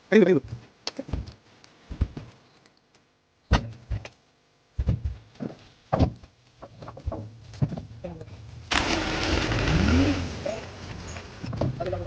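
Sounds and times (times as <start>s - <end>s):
heavy thuds and knocks: 1.9s - 2.3s, 4.8s - 8.0s.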